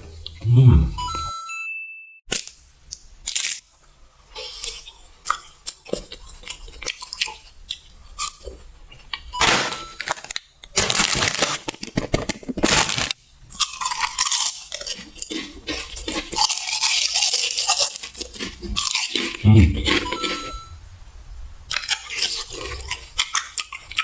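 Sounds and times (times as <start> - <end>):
crunchy chewing: 4.3 - 9.3, 12.6 - 20.7, 21.7 - 24.0.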